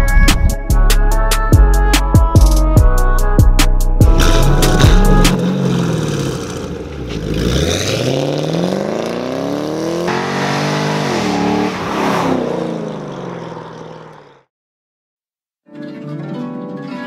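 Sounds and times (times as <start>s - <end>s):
car engine revving: 4.0s - 14.4s.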